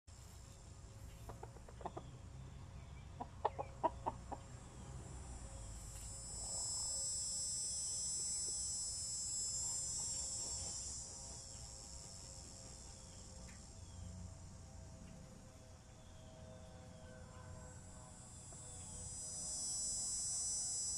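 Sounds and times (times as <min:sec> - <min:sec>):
steady high buzz: 0:00.1 - 0:20.9
hens clucking: 0:01.1 - 0:02.1, 0:03.2 - 0:04.6.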